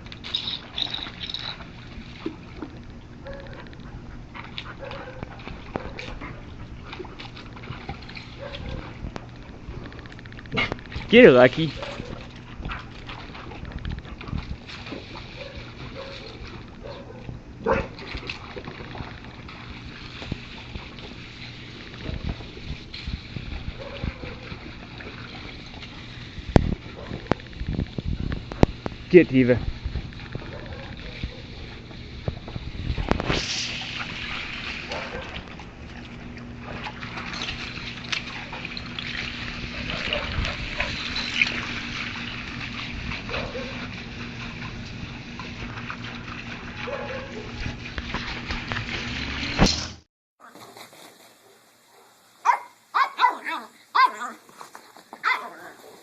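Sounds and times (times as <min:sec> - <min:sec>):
dogs playing and chasing: 0:00.0 - 0:29.0, 0:29.6 - 0:49.8, 0:50.4 - 0:56.0
steady low hum: 0:00.0 - 0:50.0
dog barking: 0:03.2 - 0:03.7, 0:04.8 - 0:06.1, 0:11.8 - 0:12.2, 0:15.4 - 0:18.0, 0:23.8 - 0:24.4, 0:30.5 - 0:31.7, 0:34.9 - 0:35.3, 0:43.3 - 0:43.8, 0:46.8 - 0:47.5, 0:51.9 - 0:54.4, 0:55.2 - 0:56.0
dogs scuffling: 0:54.0 - 0:56.0.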